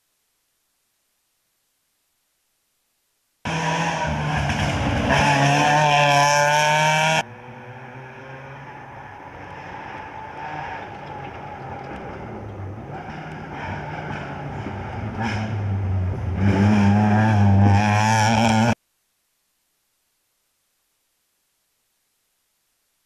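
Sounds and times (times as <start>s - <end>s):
car engine at high revs: 3.5s - 12.0s, 12.9s - 18.8s.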